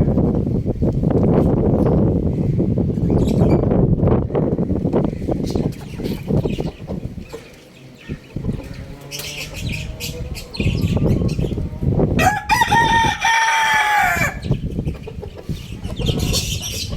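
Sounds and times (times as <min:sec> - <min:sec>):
rooster crowing: 0:12.2 - 0:14.6.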